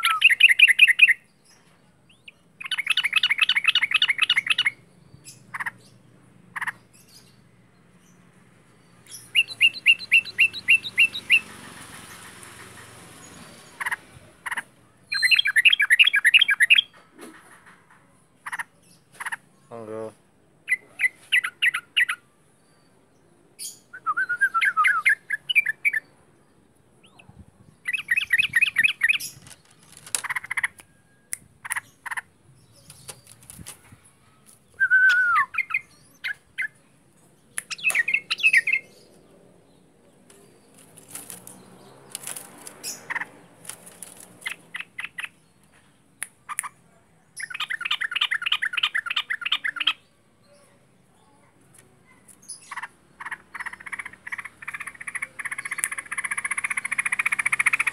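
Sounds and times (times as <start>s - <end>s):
bird singing chattering phrases: 0.0s - 8.2s, 8.8s - 17.0s, 18.3s - 57.9s
fast bird trill: 9.2s - 11.5s.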